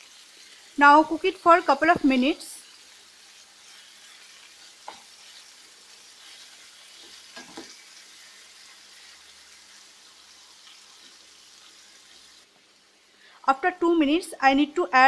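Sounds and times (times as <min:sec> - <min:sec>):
chicken sizzling in hot oil: 0:00.0 - 0:13.4
wooden spoon knocking on pan: 0:04.8 - 0:05.1.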